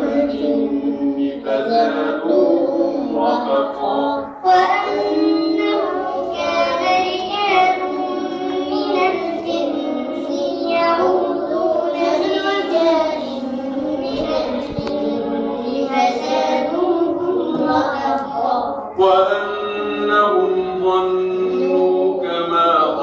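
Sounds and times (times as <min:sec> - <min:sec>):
child chanting recitation: 0:00.0 - 0:23.0.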